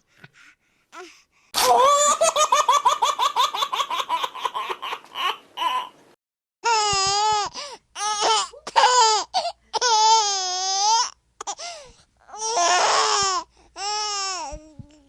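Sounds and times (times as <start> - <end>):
baby crying: 6.6 - 11.6, 12.3 - 14.5.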